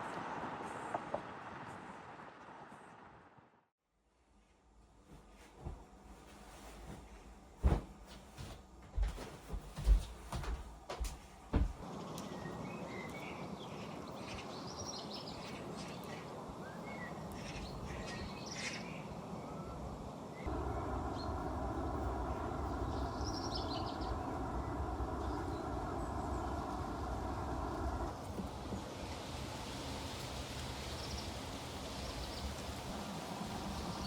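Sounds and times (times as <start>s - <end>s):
outdoor background noise: 0.0s - 34.0s
small birds chirping: 11.8s - 28.0s.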